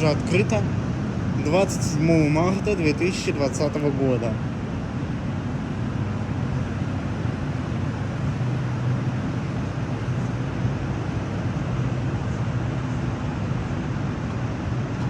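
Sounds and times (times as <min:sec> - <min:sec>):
low hum: 0:00.0 - 0:08.2
metro train rumble and hiss: 0:00.0 - 0:15.0.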